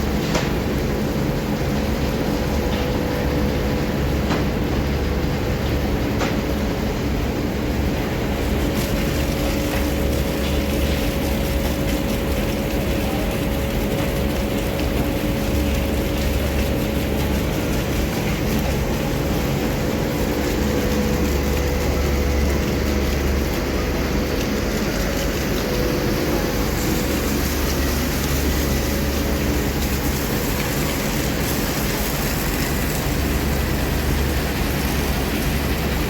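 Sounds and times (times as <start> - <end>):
heavy diesel engine running: 12.5 - 36.0.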